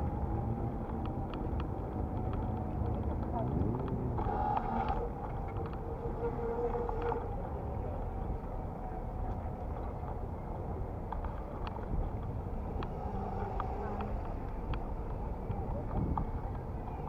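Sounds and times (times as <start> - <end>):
bicycle riding rumble: 0.0 - 17.0
faint clicks: 10.9 - 17.0.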